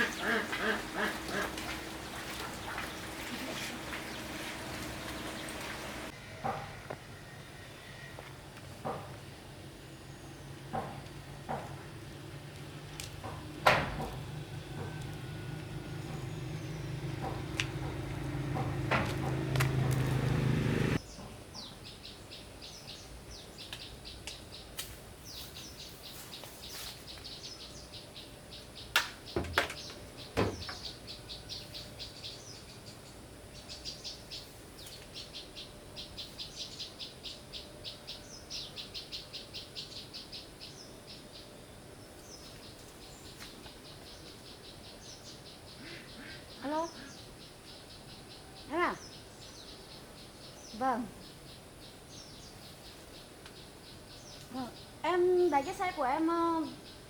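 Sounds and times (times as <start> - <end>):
machine humming: 0.0 - 6.2.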